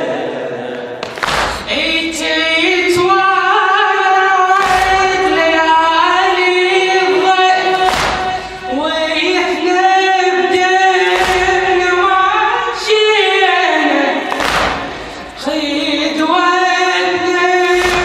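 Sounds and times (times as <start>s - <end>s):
many voices chanting in unison: 0.0s - 18.0s
heavy thumps: 7.7s - 9.2s, 11.0s - 12.6s, 14.3s - 15.8s, 17.1s - 18.0s.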